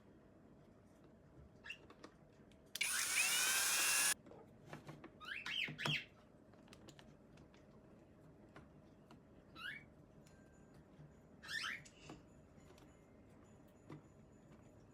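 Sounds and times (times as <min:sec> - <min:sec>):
small electric motor whine: 0:02.8 - 0:04.2.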